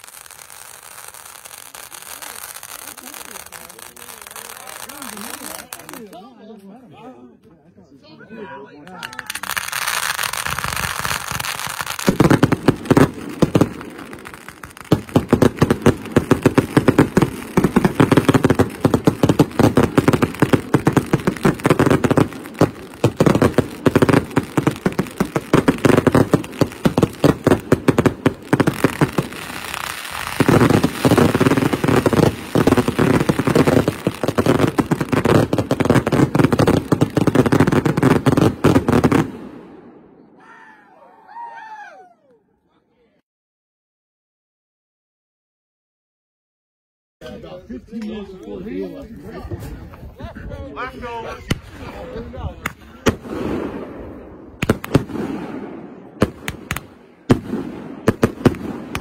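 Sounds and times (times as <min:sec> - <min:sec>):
fireworks launching and bursting: 0:00.0 - 0:06.3, 0:09.0 - 0:40.3, 0:51.4 - 0:59.0.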